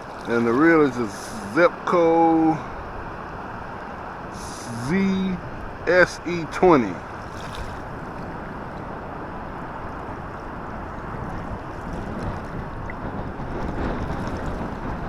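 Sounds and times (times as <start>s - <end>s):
wind buffeting microphone: 6.6s - 15.0s.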